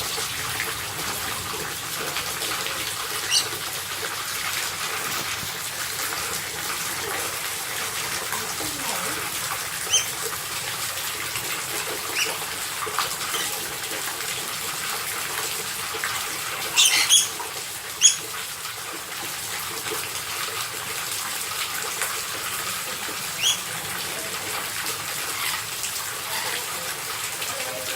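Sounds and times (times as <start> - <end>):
parrot high sharp calls: 3.2 - 3.6, 8.3 - 10.2, 16.8 - 17.4, 18.0 - 18.2, 23.4 - 23.6.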